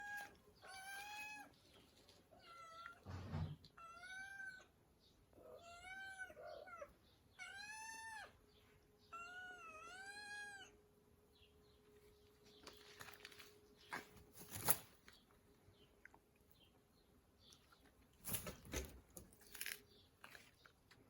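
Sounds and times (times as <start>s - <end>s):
cat meowing: 2.4s - 4.7s, 5.4s - 8.4s, 9.1s - 10.8s.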